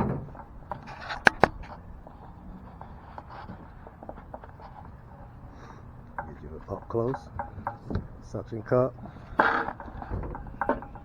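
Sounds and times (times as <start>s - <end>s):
short scrape: 1.0s - 1.5s.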